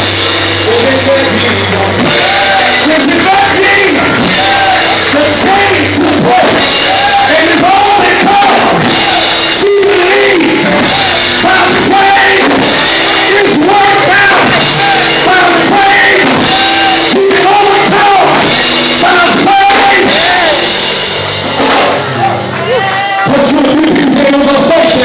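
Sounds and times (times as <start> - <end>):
church music: 0.0 - 25.0
person singing long sliding notes: 0.3 - 21.0.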